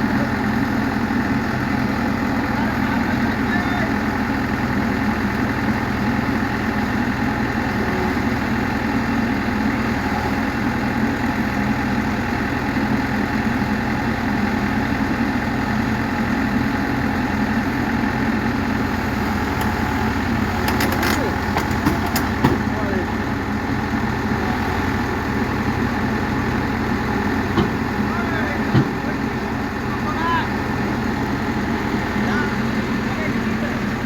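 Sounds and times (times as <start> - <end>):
heavy diesel engine idling: 0.0 - 34.0.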